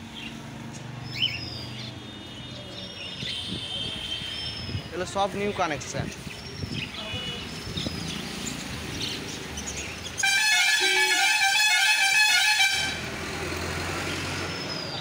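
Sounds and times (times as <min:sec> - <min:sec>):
musical vehicle horn tune: 0:10.2 - 0:13.1.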